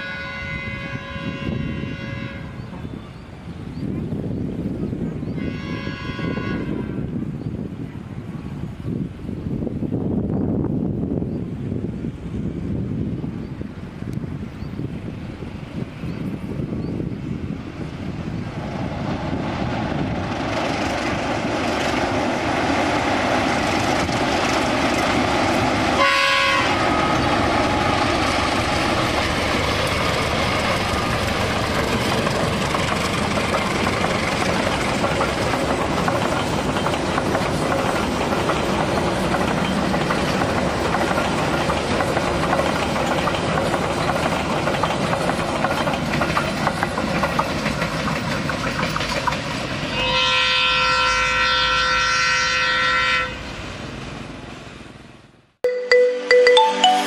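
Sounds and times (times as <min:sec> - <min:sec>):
train horn blast: 0:00.0 - 0:02.8, 0:05.4 - 0:07.1, 0:26.0 - 0:27.0, 0:49.9 - 0:53.5
train wheels on rails: 0:00.0 - 0:55.2.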